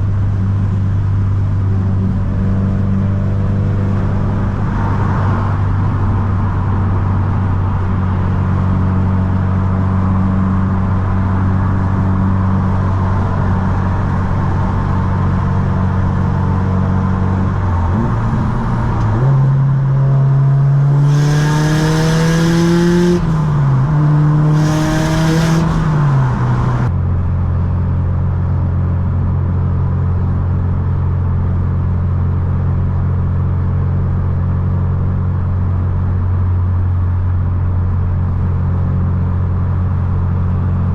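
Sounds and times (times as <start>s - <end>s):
car engine accelerating: 0.0s - 31.7s.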